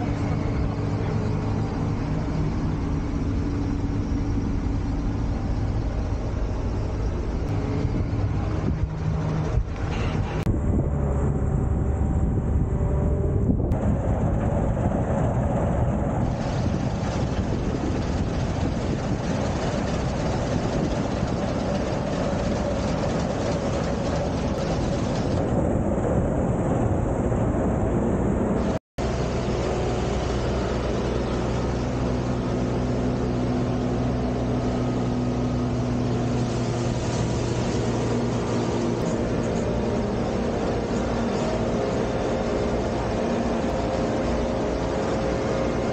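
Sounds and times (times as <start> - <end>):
combine harvester engine drone: 0.0 - 45.9.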